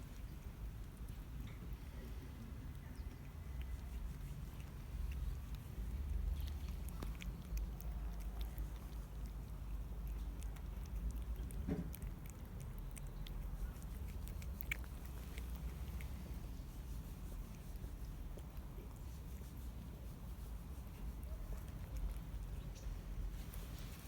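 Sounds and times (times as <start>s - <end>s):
cat chewing food: 0.0s - 24.0s.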